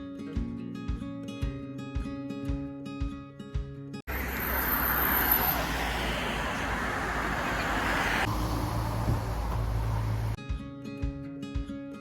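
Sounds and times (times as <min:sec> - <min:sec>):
low engine hum: 0:04.1 - 0:10.4
vehicle road noise hiss: 0:04.1 - 0:10.4.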